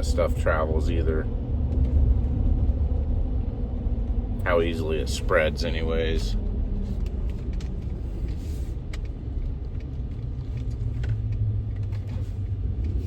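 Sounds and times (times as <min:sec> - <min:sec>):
truck engine and road rumble: 0:00.0 - 0:13.0.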